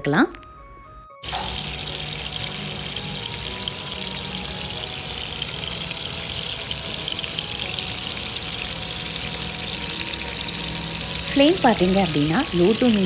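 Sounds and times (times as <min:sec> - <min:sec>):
prawns sizzling in frying pan: 0:01.2 - 0:13.0.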